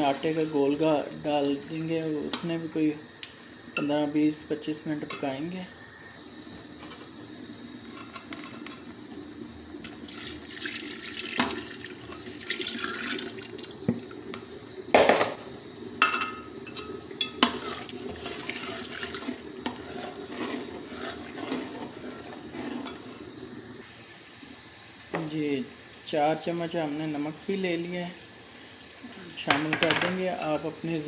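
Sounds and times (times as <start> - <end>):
slurry poured into pot: 17.4 - 23.2.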